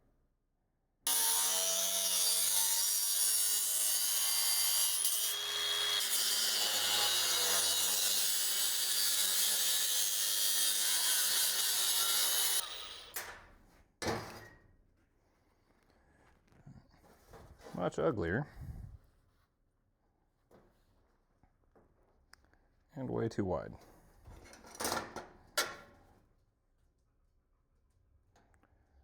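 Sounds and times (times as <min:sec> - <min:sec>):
power tool cutting metal: 0:01.1 - 0:13.3.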